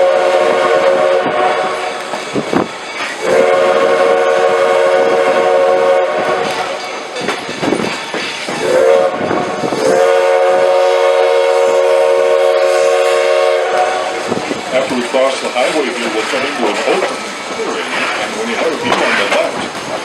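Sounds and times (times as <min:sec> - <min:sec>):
steam locomotive whistle blasts: 0:00.0 - 0:02.0, 0:03.2 - 0:06.9, 0:08.6 - 0:14.3
wind buffeting microphone: 0:00.0 - 0:13.2, 0:13.9 - 0:15.1.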